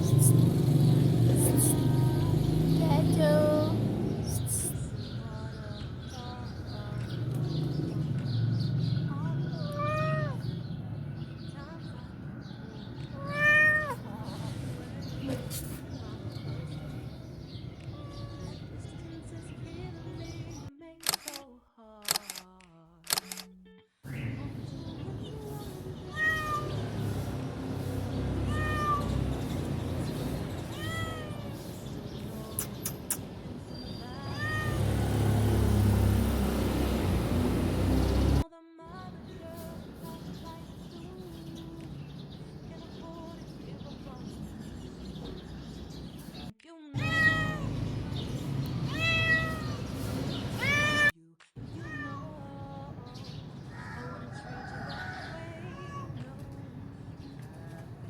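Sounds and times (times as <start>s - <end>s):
cat meowing: 9.6s - 10.5s, 13.0s - 14.1s, 17.8s - 18.6s, 26.0s - 27.1s, 28.4s - 29.6s, 30.5s - 31.9s, 34.2s - 34.8s, 47.0s - 47.8s, 48.8s - 49.9s, 50.5s - 52.3s, 55.6s - 56.2s.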